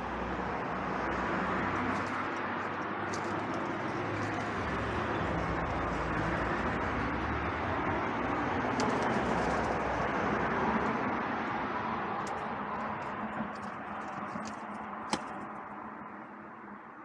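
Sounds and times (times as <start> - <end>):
distant traffic hiss: 0.0 - 17.0
sharp tap: 14.4 - 15.4.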